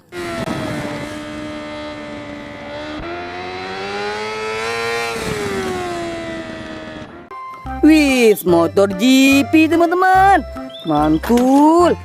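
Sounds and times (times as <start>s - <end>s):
racing motorcycle engine high revs: 0.0s - 7.3s.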